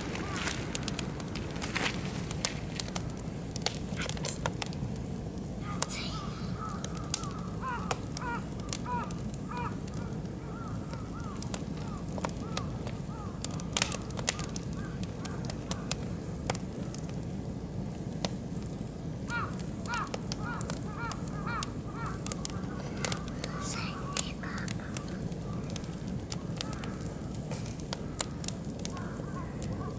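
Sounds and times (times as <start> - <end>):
wood fire crackling in a grill: 0.0 - 29.9
bird calling: 5.6 - 13.4.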